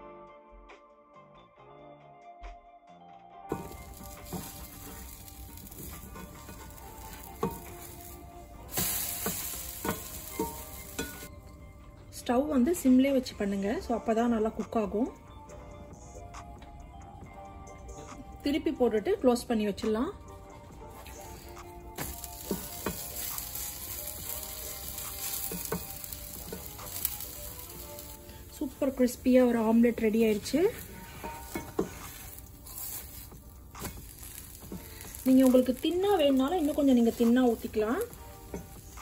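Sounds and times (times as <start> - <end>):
omelette sizzling in skillet: 3.5 - 11.3, 20.9 - 39.0
spatula tapping and scraping pan: 3.5 - 11.3, 22.0 - 28.2, 29.4 - 39.0.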